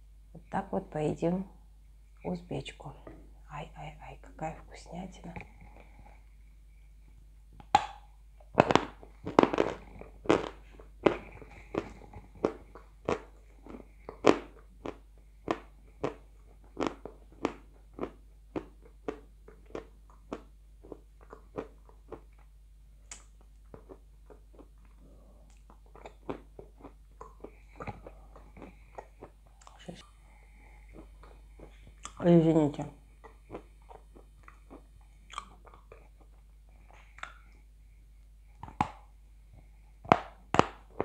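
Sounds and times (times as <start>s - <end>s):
person crunching chalk: 8.6s - 15.0s.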